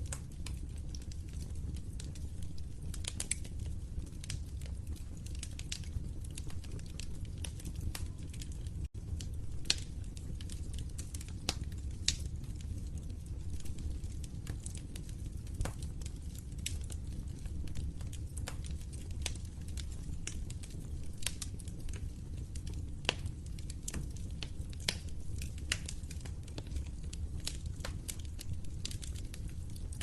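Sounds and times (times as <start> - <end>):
fire popping: 0.0 - 30.0
low rumble of flames: 0.0 - 30.0.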